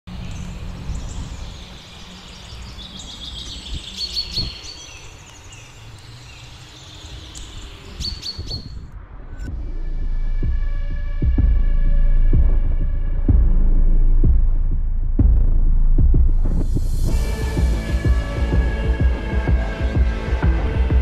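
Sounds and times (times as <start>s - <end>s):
small birds chirping and trilling: 0.1s - 9.5s.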